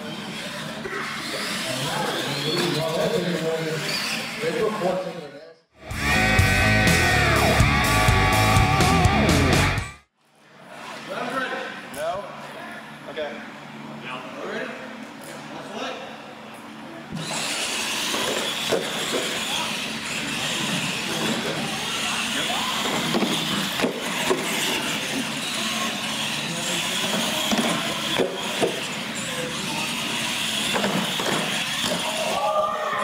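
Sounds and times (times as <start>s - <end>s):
electric motors whining: 5.8s - 10.0s, 17.0s - 33.0s.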